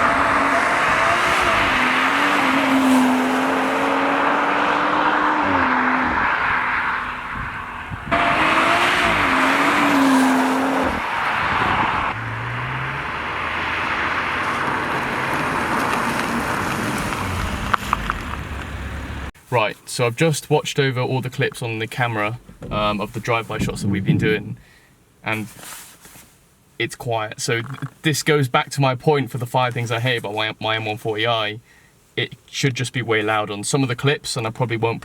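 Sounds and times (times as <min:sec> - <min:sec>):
car engine driving past: 0:00.0 - 0:19.3
tyre noise: 0:00.0 - 0:19.3, 0:21.5 - 0:24.7.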